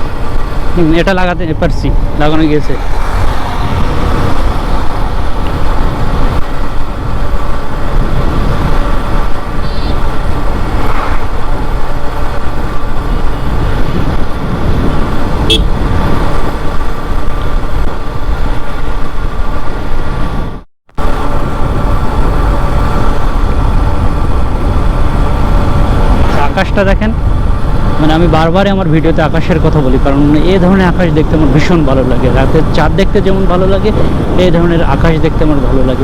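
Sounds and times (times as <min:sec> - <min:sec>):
motorcycle engine: 0:00.0 - 0:28.4
loud wind rumble on microphone: 0:00.0 - 0:36.0
road noise: 0:00.0 - 0:36.0.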